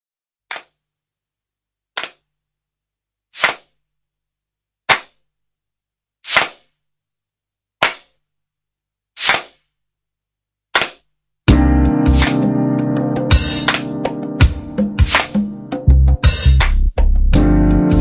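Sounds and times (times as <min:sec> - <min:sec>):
hissy percussive hits: 0:13.3 - 0:15.6.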